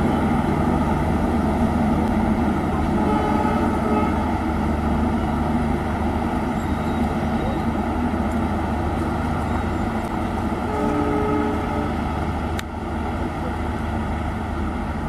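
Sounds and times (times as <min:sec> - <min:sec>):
low hum from coaches: 0:00.0 - 0:15.0
rumble of wheels on rails: 0:00.0 - 0:15.0.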